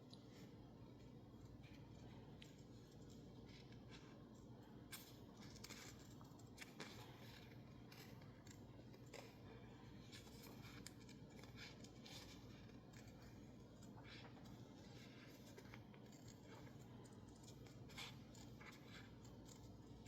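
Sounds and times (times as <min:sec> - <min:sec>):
low steady hum: 0:00.0 - 0:20.0
scissors snipping paper: 0:04.9 - 0:20.0.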